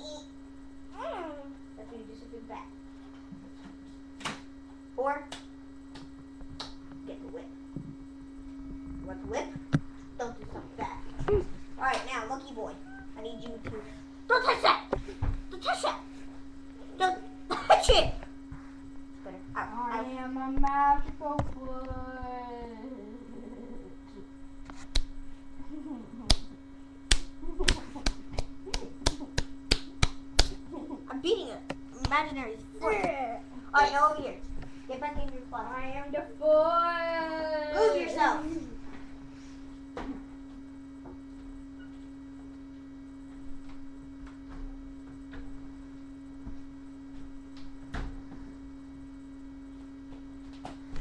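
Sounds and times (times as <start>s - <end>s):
electrical hum: 0.0s - 51.0s
sharp smacks: 27.1s - 30.6s.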